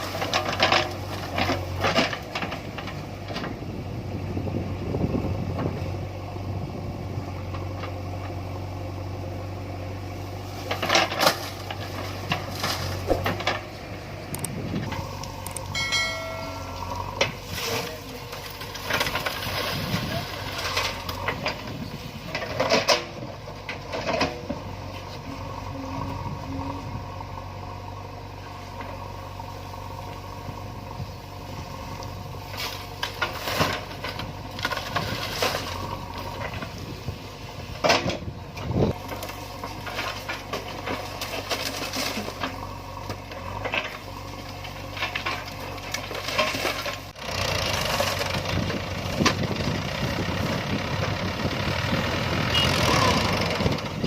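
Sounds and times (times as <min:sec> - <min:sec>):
heavy diesel engine running: 0:00.0 - 0:54.0
knocks and clatters: 0:10.7 - 0:13.7.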